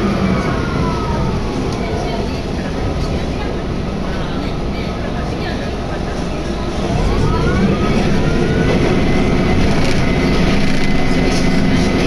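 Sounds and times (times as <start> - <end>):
train wheels and engine rumbling: 0.0 - 12.0
rising whine: 6.8 - 11.9.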